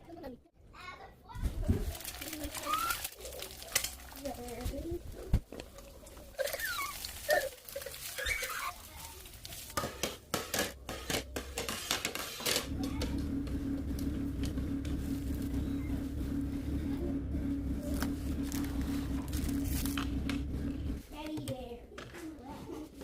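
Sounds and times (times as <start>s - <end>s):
kitchen appliance motor humming: 12.4s - 21.1s.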